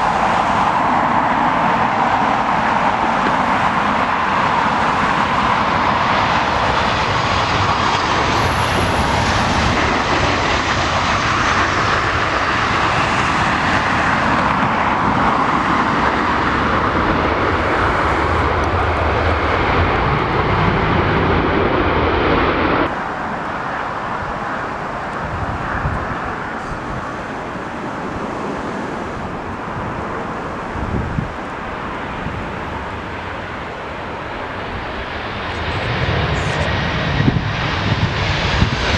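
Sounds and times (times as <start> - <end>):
airliner engines passing: 0.0 - 38.9.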